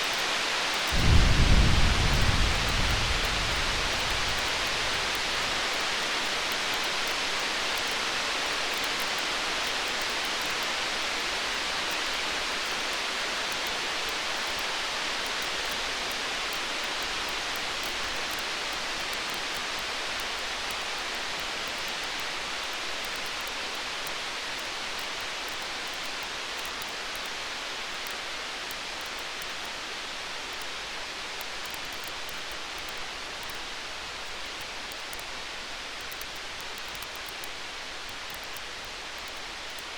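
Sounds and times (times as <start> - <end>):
faint campfire crackles: 0.0 - 39.9
stormy night hiss: 0.1 - 7.8.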